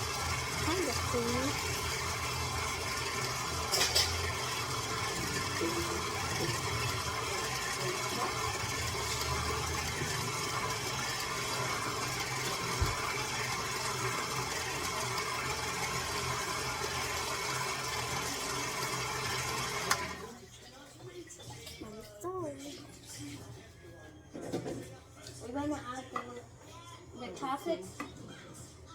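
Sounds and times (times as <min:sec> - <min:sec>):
electric mixer whirring: 0:00.0 - 0:20.3.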